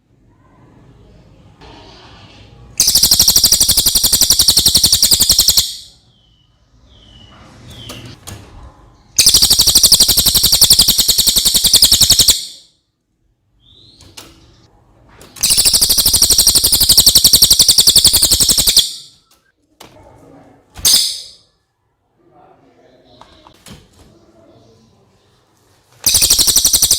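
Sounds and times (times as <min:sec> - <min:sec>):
parrot short chirps: 0:09.2 - 0:12.6, 0:15.4 - 0:19.1, 0:20.8 - 0:21.4, 0:26.0 - 0:26.9
parrot shrill trills: 0:15.4 - 0:19.1.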